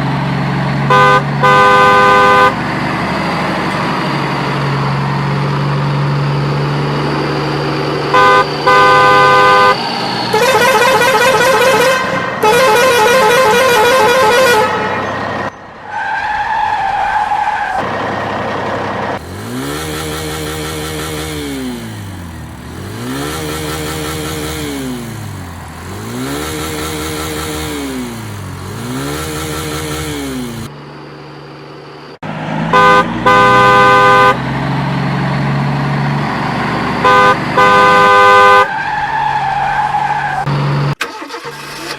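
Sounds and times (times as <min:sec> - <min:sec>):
electronic engine hum: 0:00.0 - 0:15.8, 0:17.8 - 0:38.6
vehicle horn blasts: 0:00.8 - 0:02.6, 0:08.1 - 0:15.2, 0:32.7 - 0:34.4, 0:37.0 - 0:38.7
siren wailing up and down: 0:03.3 - 0:17.8.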